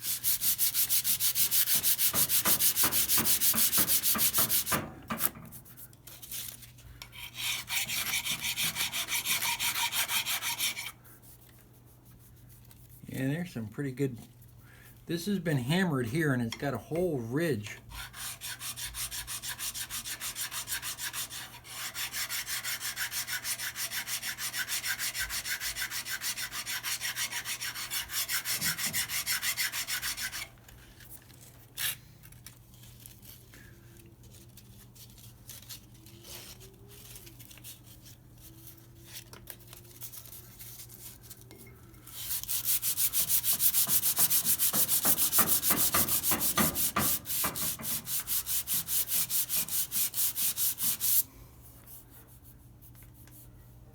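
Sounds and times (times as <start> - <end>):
hand sanding steel strokes: 0.0 - 5.8, 7.2 - 13.3, 17.9 - 30.5, 42.2 - 51.3.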